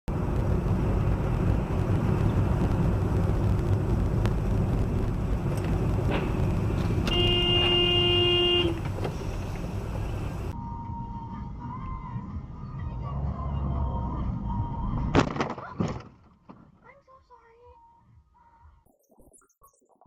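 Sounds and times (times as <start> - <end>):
car road rumble: 0.1 - 10.6
car horn honk: 7.0 - 8.9.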